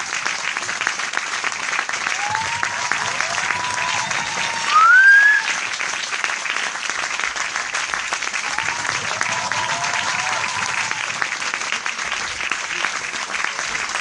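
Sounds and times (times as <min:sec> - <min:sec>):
audience applauding: 0:00.0 - 0:14.0
crowd calling out: 0:02.2 - 0:05.6, 0:08.4 - 0:11.2
loud rising whistle: 0:03.6 - 0:05.6.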